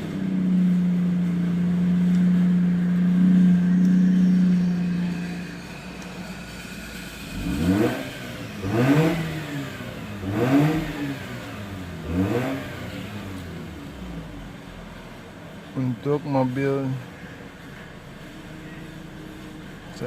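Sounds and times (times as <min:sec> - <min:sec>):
rotary engine revving: 0:00.0 - 0:14.8.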